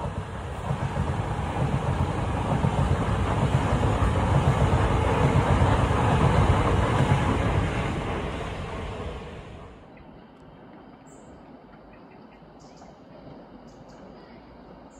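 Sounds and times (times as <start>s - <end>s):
train wheels rumbling on rail: 0.0s - 9.8s.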